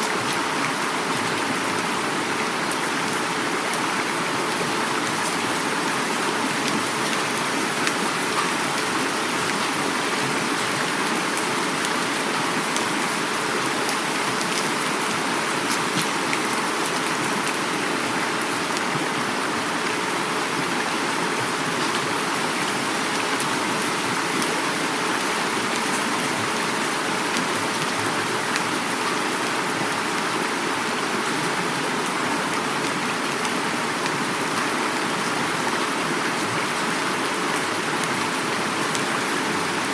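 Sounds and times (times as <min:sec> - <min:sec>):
heavy rain falling: 0:00.0 - 0:39.9
river water flowing: 0:00.0 - 0:39.9.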